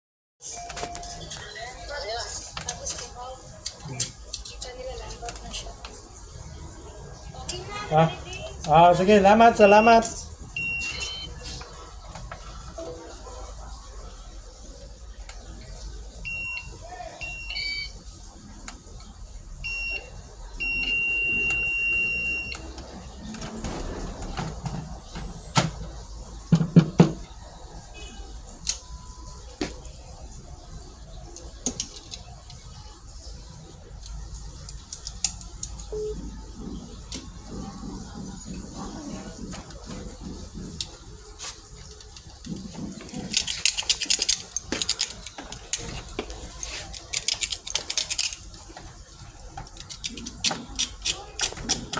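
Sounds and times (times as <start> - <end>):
alarm beeping: 9.6 - 11.4, 16.2 - 18.0, 19.6 - 22.7
small hard objects clattering: 41.5 - 51.9.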